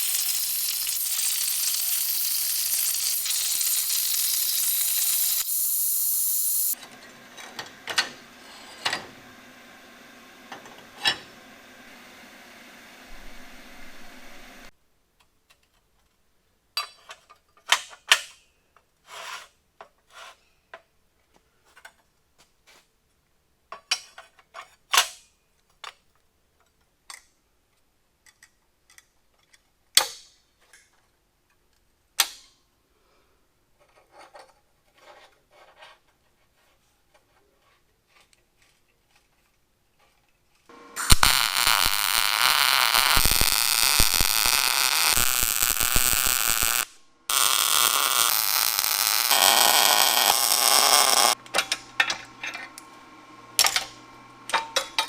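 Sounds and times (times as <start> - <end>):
loud steady hissing: 0.0 - 6.8, 40.7 - 51.4
metal parts and tools clanking: 51.4 - 52.8.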